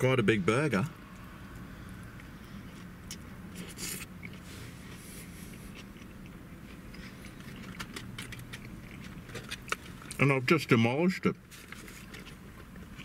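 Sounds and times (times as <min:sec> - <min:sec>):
low hum in car cabin: 0:00.0 - 0:13.0
man chewing food: 0:01.2 - 0:10.2, 0:11.7 - 0:13.0.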